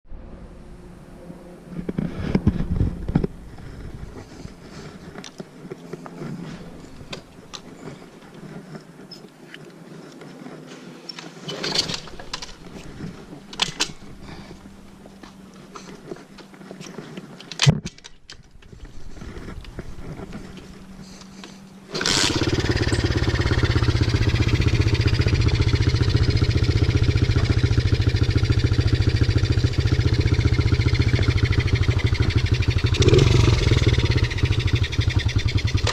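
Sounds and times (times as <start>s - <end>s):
small motorbike engine running: 18.7s - 35.9s.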